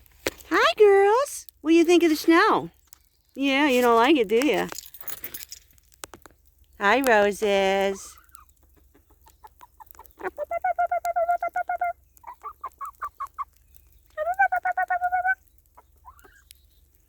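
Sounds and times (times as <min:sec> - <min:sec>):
hens clucking: 0:06.8 - 0:16.4.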